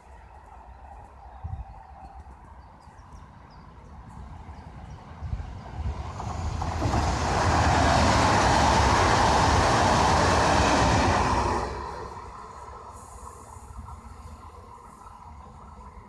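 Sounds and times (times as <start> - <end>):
train wheels rolling on rails: 0.0 - 16.0.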